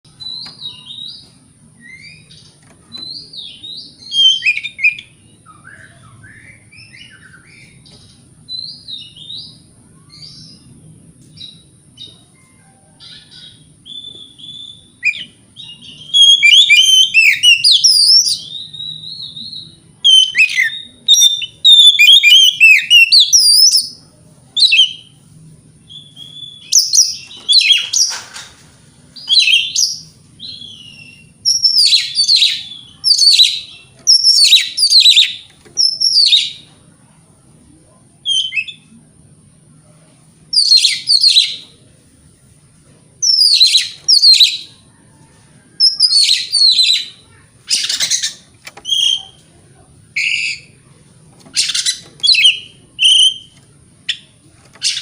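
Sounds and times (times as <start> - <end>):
bird singing whistled phrases: 1.8 - 2.4, 3.0 - 7.8, 13.0 - 24.0, 24.6 - 25.1, 25.9 - 28.2, 29.2 - 36.6, 38.2 - 38.9, 40.5 - 41.7, 43.2 - 44.8, 45.8 - 49.4, 50.2 - 50.8, 51.6 - 55.0.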